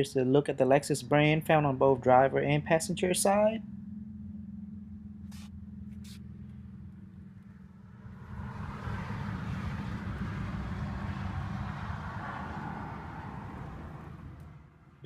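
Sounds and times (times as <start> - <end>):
car cabin hum: 1.2 - 11.8.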